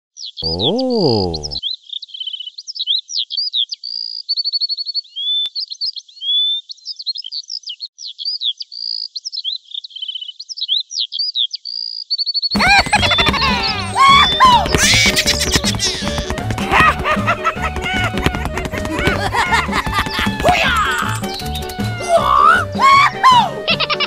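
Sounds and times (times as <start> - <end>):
songbirds chirping: 0.2 - 23.2
person saying oh: 0.4 - 1.6.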